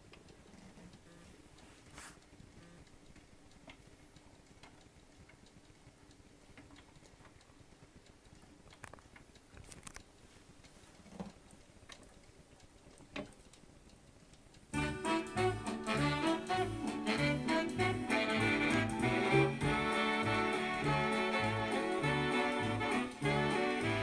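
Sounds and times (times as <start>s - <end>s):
record stylus clicks and ticks: 0.0s - 14.8s.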